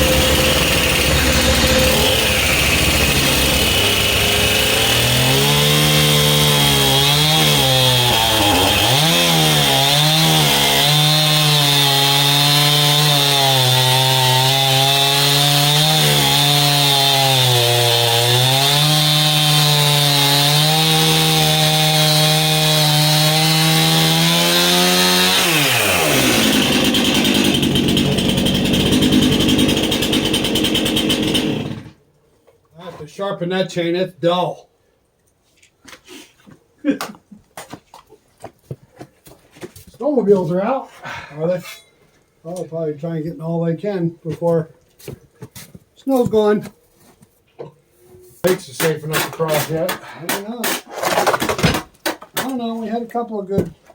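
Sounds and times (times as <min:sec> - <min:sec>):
rough noisy sound: 0:00.0 - 0:05.0
chainsaw cutting log: 0:00.0 - 0:32.0, 0:48.5 - 0:52.2
chainsaw engine winding down: 0:00.0 - 0:32.0.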